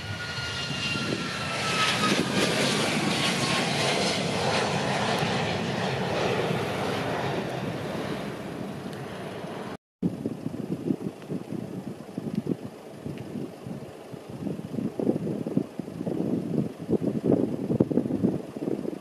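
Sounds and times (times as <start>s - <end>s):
airliner passing: 0.0s - 9.8s.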